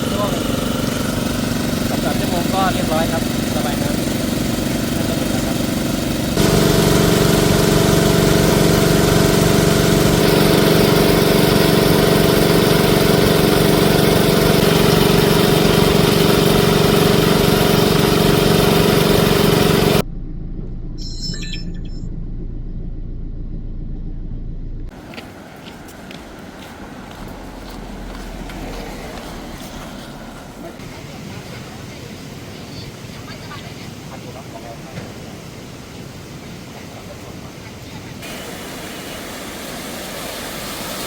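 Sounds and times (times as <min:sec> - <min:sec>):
water pump engine running: 0:00.0 - 0:21.0, 0:24.9 - 0:41.0
low rumble: 0:20.0 - 0:24.9.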